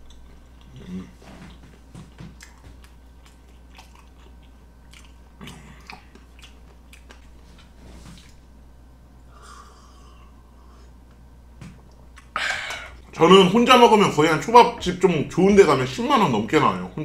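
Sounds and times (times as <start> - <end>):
person chewing wetly: 0.0 - 8.4.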